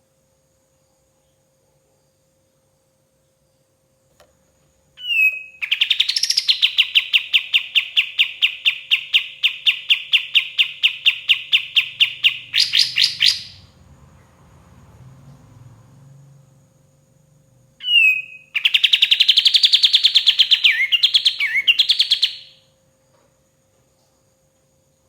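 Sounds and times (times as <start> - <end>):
songbird trilling: 5.0 - 13.7, 17.8 - 22.6.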